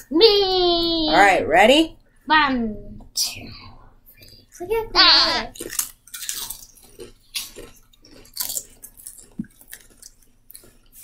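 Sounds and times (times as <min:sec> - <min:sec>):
people chewing potato chips: 0:05.1 - 0:11.0.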